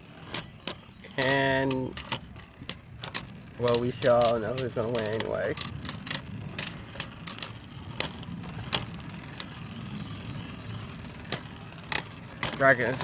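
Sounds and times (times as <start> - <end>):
spinning tops whirring: 0.0 - 13.0
spinning tops clacking: 0.1 - 9.6.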